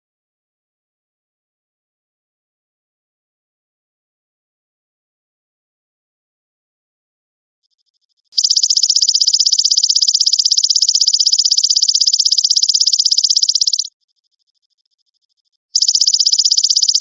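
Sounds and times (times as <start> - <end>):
grasshopper pulsed trill: 8.4 - 14.5, 15.3 - 17.0.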